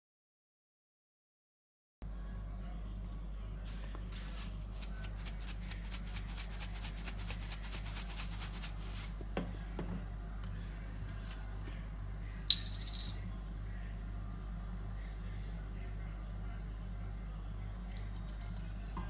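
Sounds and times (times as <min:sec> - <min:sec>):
utensil scraping strokes: 0:03.7 - 0:09.2.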